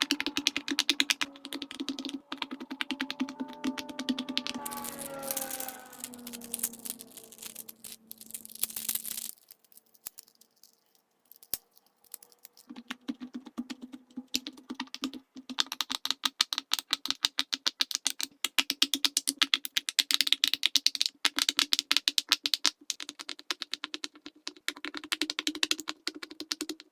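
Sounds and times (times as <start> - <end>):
fidget toy bubbles popping: 0.0 - 4.7
scattered clicks: 0.0 - 21.5.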